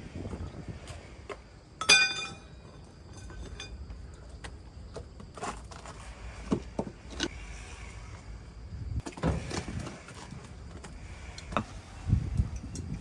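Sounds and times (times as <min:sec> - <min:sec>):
hard metal clank: 0:01.8 - 0:02.6
metal tools clinking: 0:01.8 - 0:03.8.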